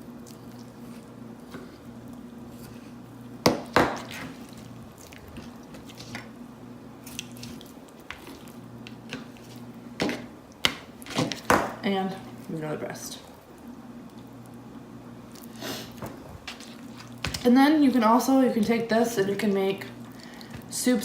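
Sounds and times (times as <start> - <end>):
steady low hum: 0.0 - 21.0
knife squishing raw chicken: 7.0 - 10.2.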